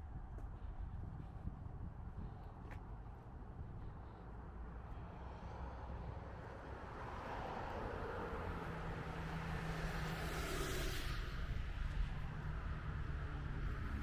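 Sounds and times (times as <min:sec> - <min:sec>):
low traffic rumble: 0:00.0 - 0:14.0
car passing: 0:04.8 - 0:14.0.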